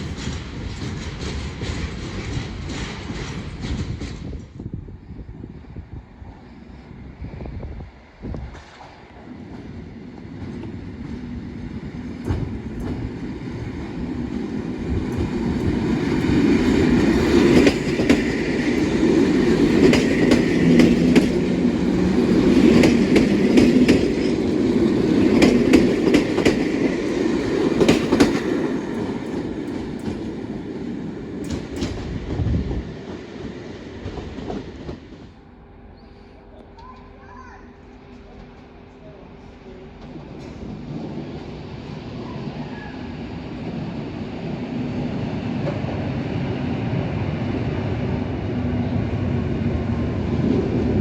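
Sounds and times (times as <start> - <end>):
train wheels clacking on rails: 0.0 - 4.6, 8.4 - 35.4, 40.0 - 44.6.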